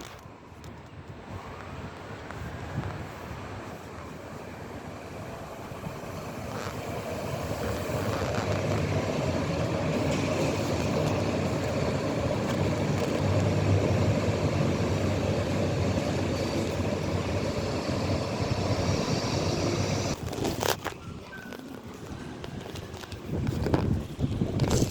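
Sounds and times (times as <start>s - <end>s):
train running past: 1.4s - 20.2s.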